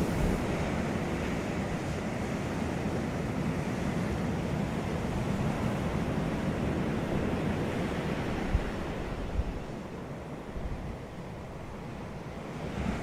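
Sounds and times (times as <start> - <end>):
sea surf washing onto beach: 0.0 - 9.2.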